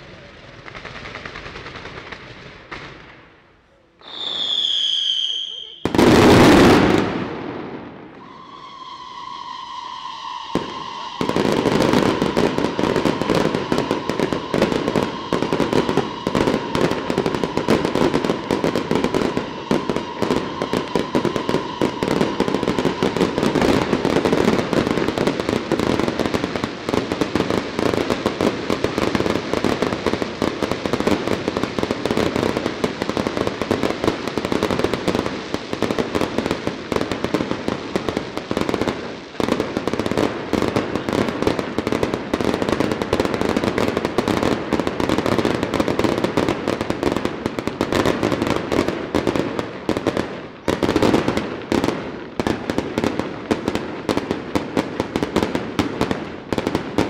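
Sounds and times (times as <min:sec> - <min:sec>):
fireworks bangs and crackling: 0:00.0 - 0:57.0
steady high tone: 0:08.1 - 0:18.5.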